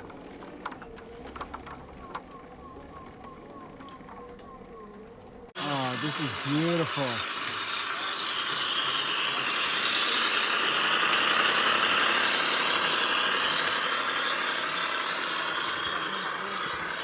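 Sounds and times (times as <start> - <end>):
toy truck motor and gears: 0.0 - 17.0.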